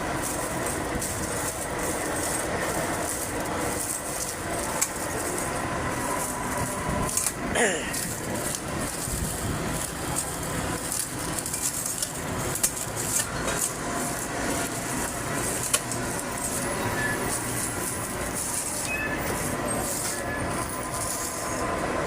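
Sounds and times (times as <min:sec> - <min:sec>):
vehicle rumble and hiss: 0:00.0 - 0:22.0
sharp clicks and knocks: 0:00.2 - 0:05.5, 0:08.0 - 0:16.5.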